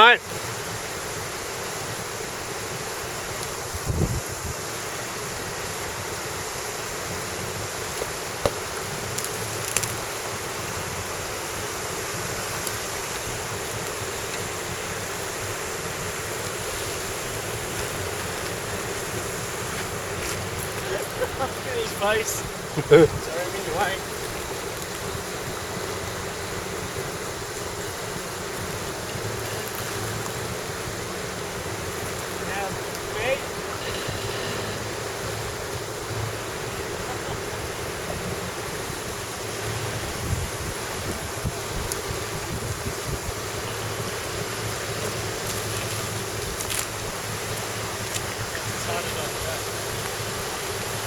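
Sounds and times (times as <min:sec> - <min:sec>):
waterfall rushing: 0:00.0 - 0:51.0
small engine humming: 0:33.5 - 0:38.6.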